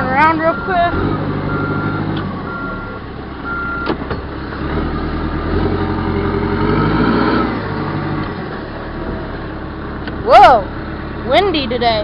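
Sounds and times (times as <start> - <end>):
diesel engine running: 0.0 - 12.0
reverse alarm beeping: 0.4 - 3.9.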